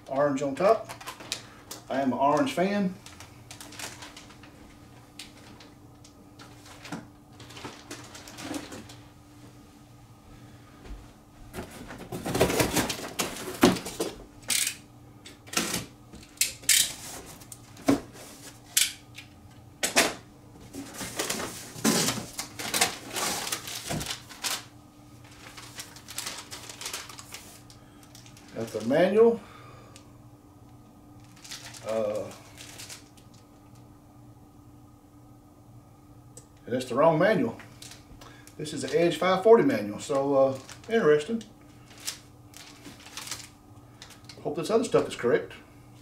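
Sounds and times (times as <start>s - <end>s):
steady low hum: 0.0s - 46.0s
packaging crinkling and rustling: 0.7s - 9.1s, 11.5s - 14.8s, 20.6s - 29.2s, 31.2s - 33.8s, 37.6s - 39.2s, 40.0s - 44.4s.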